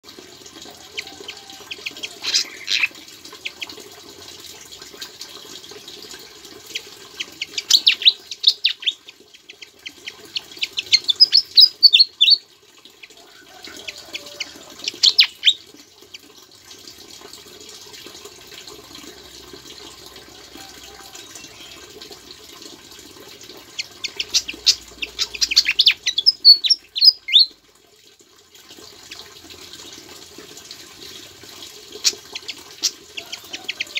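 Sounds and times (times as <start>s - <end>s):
songbird chirping and whistling: 7.6s - 9.0s, 10.8s - 12.4s, 24.1s - 27.5s.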